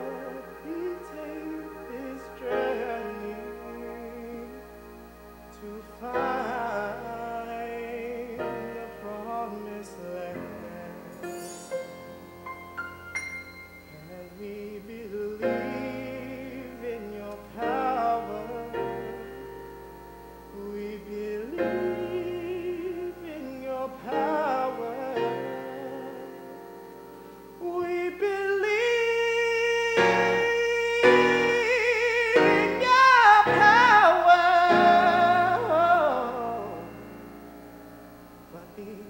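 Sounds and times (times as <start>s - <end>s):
voices singing with vibrato: 0.0s - 12.4s, 13.8s - 19.7s, 20.5s - 26.7s, 27.5s - 37.4s
instrumental accompaniment: 0.0s - 27.6s.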